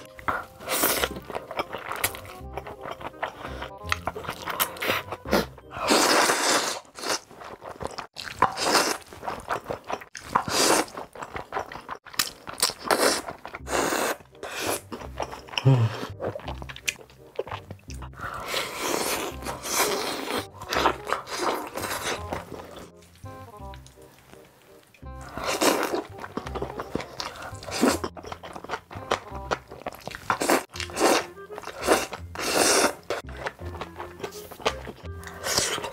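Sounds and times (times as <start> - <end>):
person chewing and crunching food: 0.0 - 35.9.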